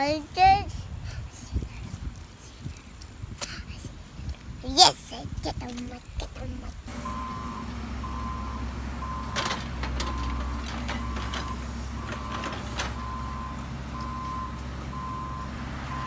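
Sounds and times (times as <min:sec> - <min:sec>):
engine rumbling: 0:06.7 - 0:16.0
reversing alarm beeping: 0:06.9 - 0:16.0.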